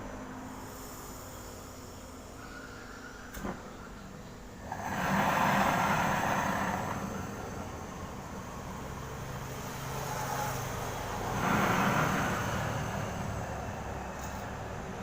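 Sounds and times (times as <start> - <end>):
torch flame hissing: 4.6 - 14.0.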